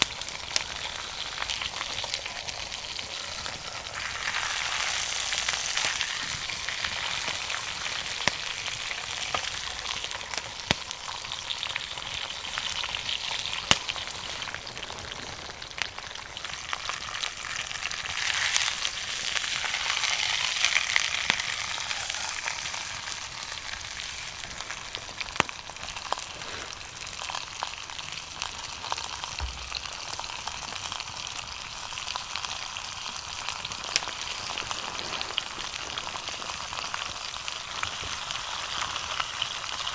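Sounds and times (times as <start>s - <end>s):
steak sizzling: 0.0s - 39.9s
sharp fire pops: 8.0s - 11.3s, 12.0s - 15.3s.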